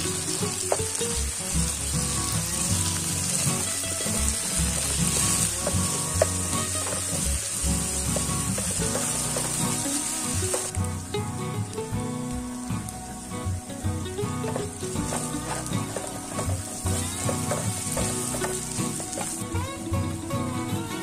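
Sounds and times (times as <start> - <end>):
food sizzling in oil: 0.0 - 21.0
wooden spatula scraping pan: 4.8 - 10.8, 14.5 - 19.4.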